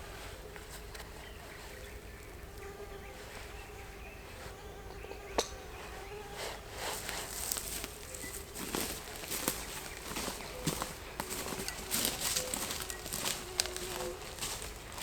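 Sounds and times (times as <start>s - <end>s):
insect buzzing: 2.0s - 15.0s
soft rustling: 6.4s - 15.0s.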